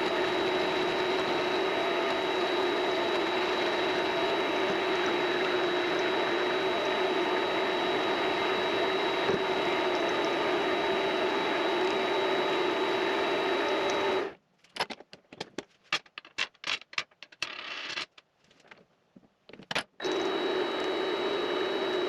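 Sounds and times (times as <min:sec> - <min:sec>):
lathe running with high whine: 0:00.0 - 0:14.3, 0:20.0 - 0:22.0.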